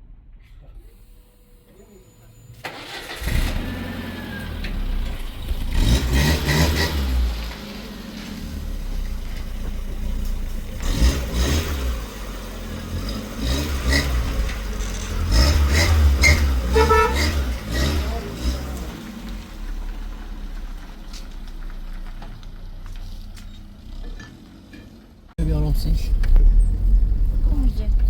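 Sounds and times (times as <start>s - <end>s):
motor engine running: 2.8s - 24.3s.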